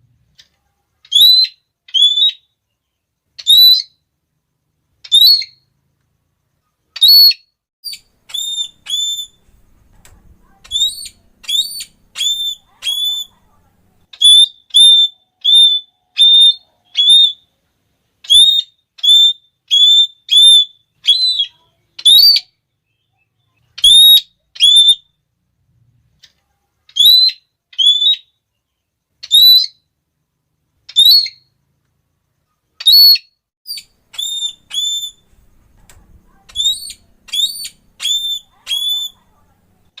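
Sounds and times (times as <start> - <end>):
parrot high-pitched calls: 1.0 - 2.5, 3.4 - 4.0, 5.0 - 5.6, 7.0 - 9.6, 10.4 - 13.5, 14.1 - 17.5, 18.2 - 22.6, 23.7 - 25.2, 26.9 - 28.4, 29.2 - 29.9, 30.9 - 31.5, 32.8 - 35.6, 36.2 - 40.0.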